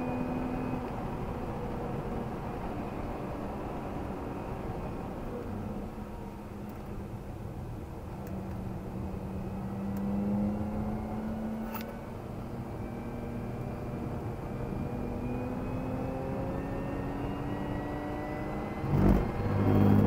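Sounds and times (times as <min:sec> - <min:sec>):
car engine accelerating: 0:08.1 - 0:20.0
brief click: 0:11.6 - 0:12.0.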